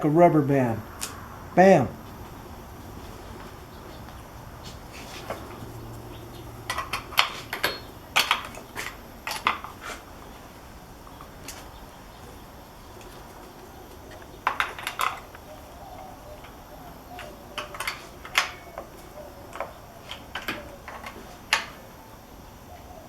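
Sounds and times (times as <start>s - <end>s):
metal tools clinking: 6.6s - 11.5s, 14.4s - 21.8s.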